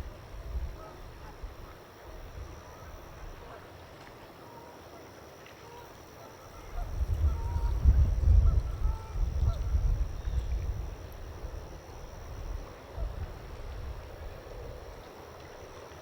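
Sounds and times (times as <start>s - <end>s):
wind rumble on microphone: 0.0s - 3.6s, 6.6s - 15.7s
distant waterfowl calls: 0.7s - 9.7s.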